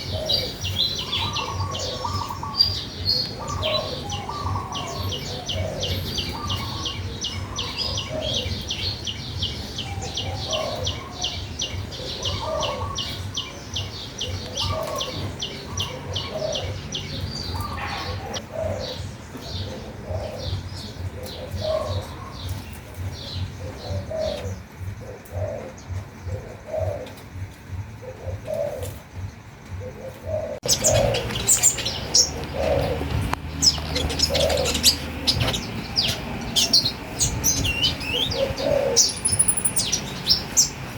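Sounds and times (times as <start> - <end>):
chorus of bird calls: 0.0 - 40.9
lower bird notes: 0.0 - 40.9
high bird chirps: 30.6 - 40.9.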